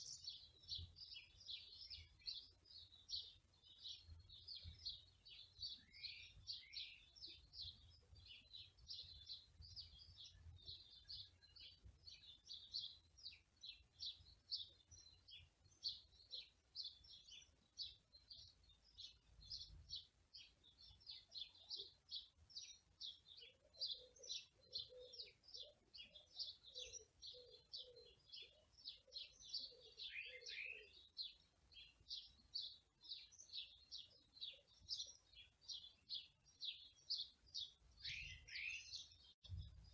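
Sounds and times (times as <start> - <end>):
small birds chirping: 0.0 - 39.9
lower repeated bird call: 22.6 - 37.2.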